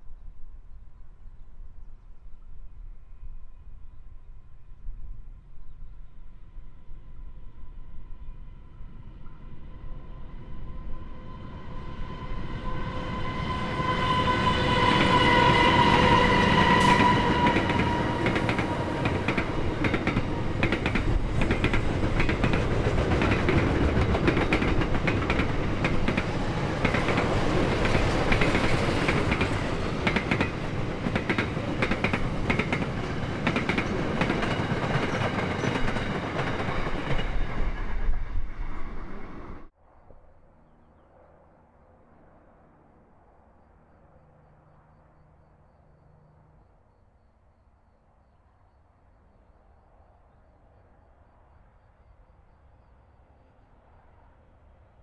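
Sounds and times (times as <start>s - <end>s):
diesel locomotives whining: 6.5s - 39.7s.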